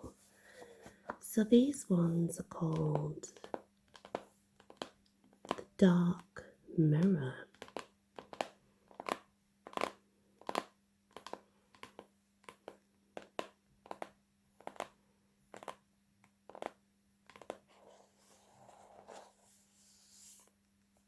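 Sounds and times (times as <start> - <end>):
soft rubbing: 17.7 - 20.6.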